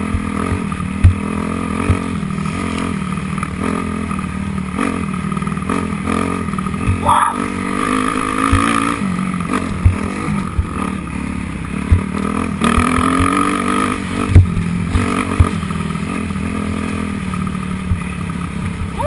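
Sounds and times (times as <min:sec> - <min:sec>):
low thumps: 0:00.0 - 0:02.2, 0:09.6 - 0:11.1, 0:14.2 - 0:15.7
dirt bike engine revving: 0:00.0 - 0:19.0.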